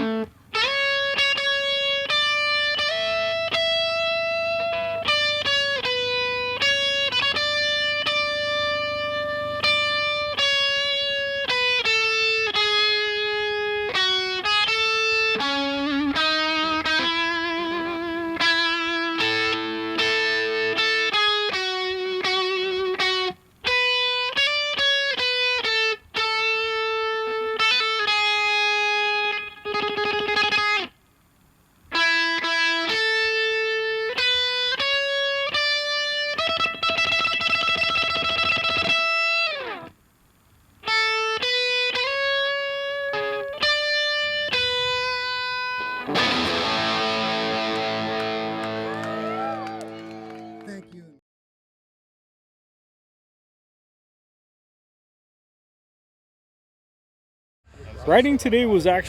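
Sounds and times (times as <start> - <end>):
electric guitar slow melody: 0.0 - 31.0, 31.9 - 40.0, 40.8 - 50.9.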